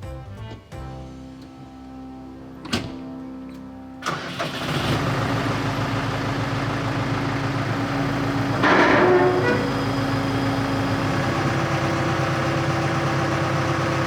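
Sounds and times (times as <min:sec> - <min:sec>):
tractor diesel engine starting and running: 0:04.0 - 0:14.0.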